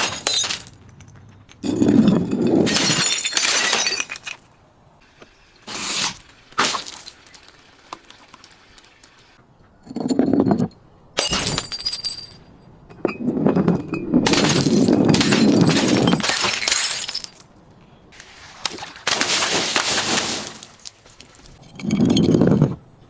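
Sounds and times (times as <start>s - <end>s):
glass bottles shattering: 0.0s - 4.5s, 5.8s - 7.6s, 11.2s - 12.4s, 13.9s - 17.5s, 19.0s - 21.0s
glass shards clinking: 0.0s - 4.5s, 13.9s - 17.5s.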